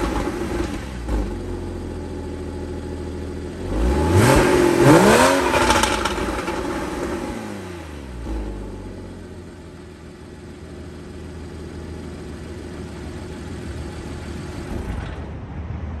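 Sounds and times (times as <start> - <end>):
car engine revving and idling: 0.0 - 15.4.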